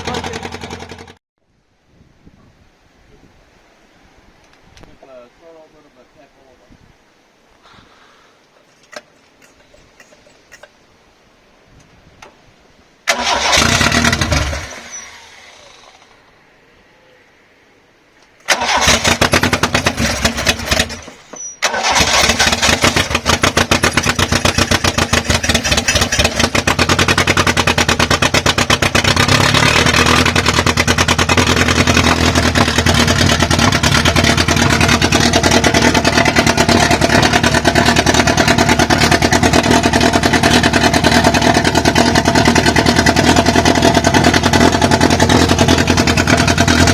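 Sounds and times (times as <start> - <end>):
car engine starting and running: 0.0 - 1.2, 13.1 - 16.4, 18.4 - 46.9.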